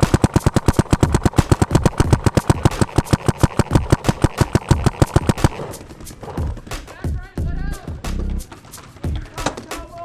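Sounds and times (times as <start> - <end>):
paintball marker rapid firing: 0.0 - 7.2.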